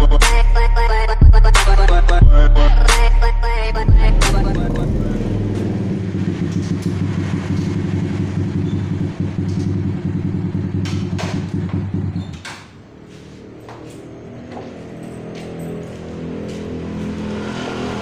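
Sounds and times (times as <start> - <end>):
motorcycle engine idling: 3.8 - 12.4.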